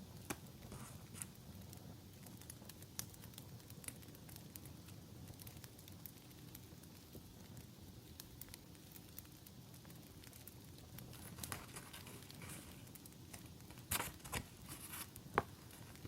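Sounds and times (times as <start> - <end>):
campfire crackling: 0.0 - 16.0
paper rustling: 11.2 - 16.0.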